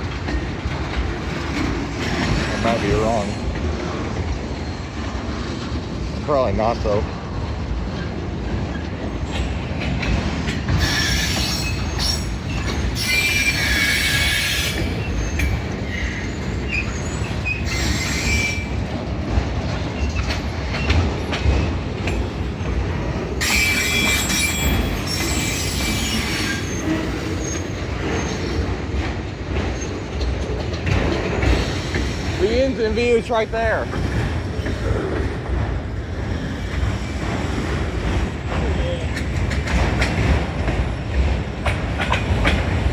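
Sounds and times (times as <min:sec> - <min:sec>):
train cars rumbling: 0:00.0 - 0:42.9
metallic wheel squealing: 0:10.8 - 0:18.7, 0:23.4 - 0:28.6.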